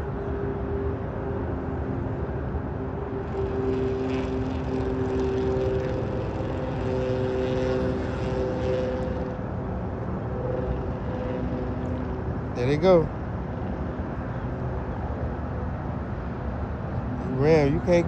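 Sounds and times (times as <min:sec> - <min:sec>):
engine drone: 0:00.0 - 0:18.0
humming tones: 0:02.6 - 0:14.3.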